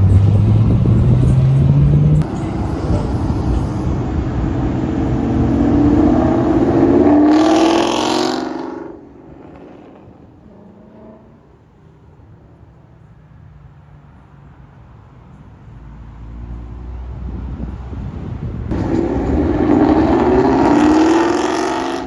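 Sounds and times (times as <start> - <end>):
car engine accelerating hard: 0.0 - 11.6, 16.2 - 22.0.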